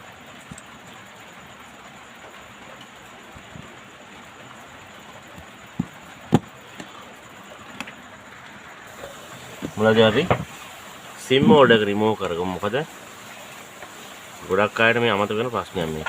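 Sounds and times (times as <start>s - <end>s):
background hiss: 0.0s - 16.0s
objects knocking on work surface: 5.4s - 6.5s.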